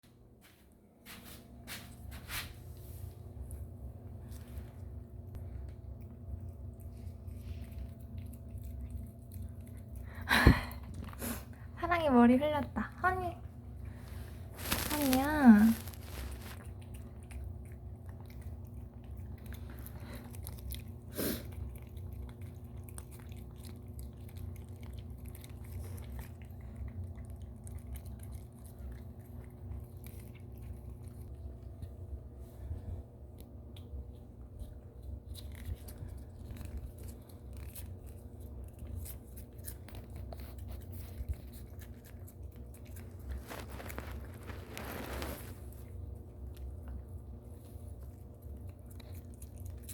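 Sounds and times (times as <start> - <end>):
low hum: 0.1 - 49.9
cat licking: 4.4 - 11.8, 12.9 - 49.9.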